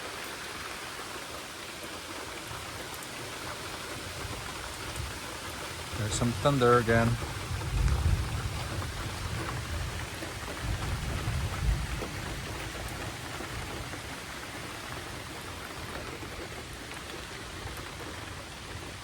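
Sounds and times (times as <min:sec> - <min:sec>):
steady rain falling: 0:00.0 - 0:19.0
thunder rumbling: 0:05.8 - 0:19.0.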